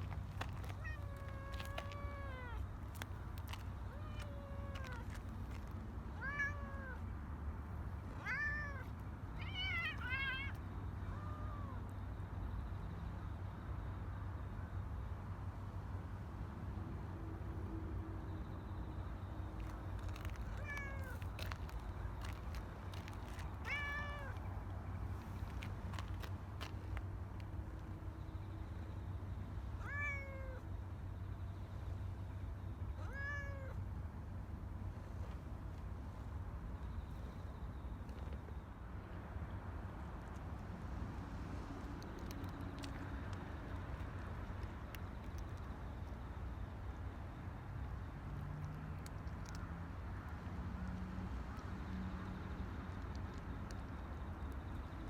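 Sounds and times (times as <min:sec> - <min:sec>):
cat meowing: 0:00.6 - 0:02.6, 0:03.9 - 0:05.2, 0:06.2 - 0:07.0, 0:08.2 - 0:11.8, 0:20.5 - 0:21.2, 0:23.6 - 0:24.4, 0:29.8 - 0:30.6, 0:33.0 - 0:33.8.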